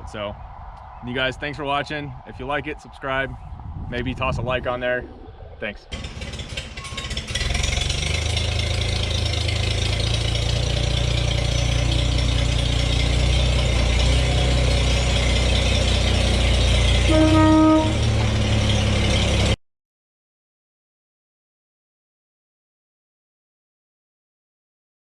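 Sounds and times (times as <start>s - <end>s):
tractor engine running: 5.9s - 19.6s.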